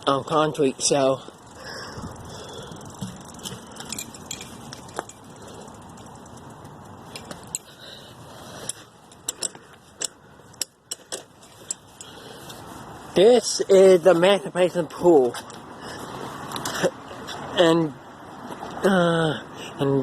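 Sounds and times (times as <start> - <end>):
bicycle rolling: 0.0 - 17.5
light metallic clinks: 3.0 - 6.1, 7.1 - 7.8.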